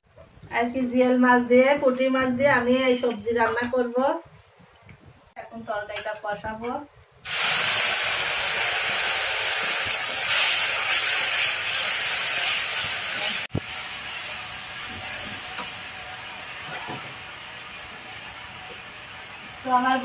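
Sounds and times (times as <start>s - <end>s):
food sizzling in hot oil: 7.2s - 20.0s.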